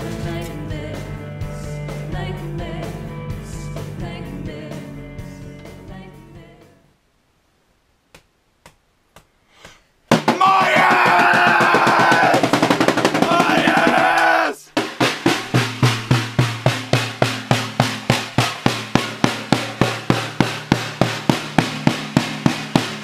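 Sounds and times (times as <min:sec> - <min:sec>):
background music with singing: 0:00.0 - 0:06.9
snare drum roll: 0:10.1 - 0:23.0
people yelling: 0:10.3 - 0:14.7.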